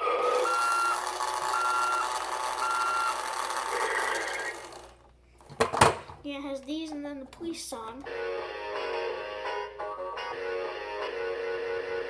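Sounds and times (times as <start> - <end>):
toy reversing beeps: 0.0 - 4.9
recorded engine noise: 0.0 - 5.1.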